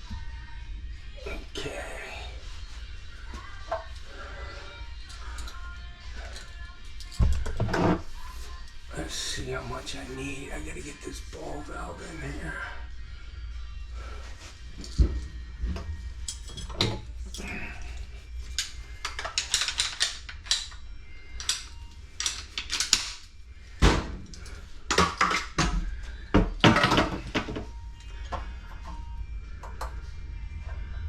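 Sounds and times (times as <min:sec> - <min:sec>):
metal fittings and tools clinking: 0:16.2 - 0:20.8, 0:21.4 - 0:23.3.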